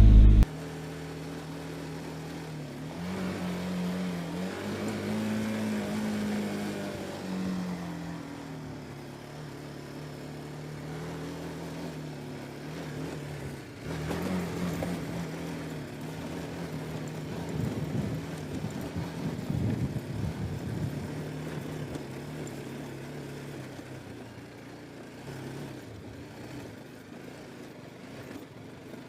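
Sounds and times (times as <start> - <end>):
rush of noise: 0.0 - 0.4
motorcycle engine revving: 0.0 - 0.5, 2.5 - 24.1.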